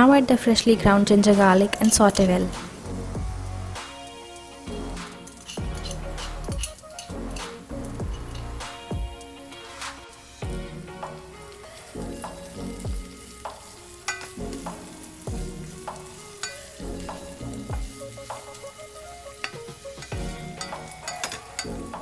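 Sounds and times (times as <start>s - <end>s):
onions sizzling in oil: 0.0s - 22.0s
spatula scraping a pan: 4.8s - 8.9s.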